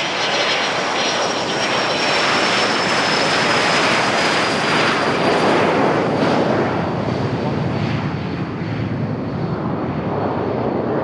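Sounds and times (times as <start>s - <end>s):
aircraft engines passing: 0.0s - 11.0s.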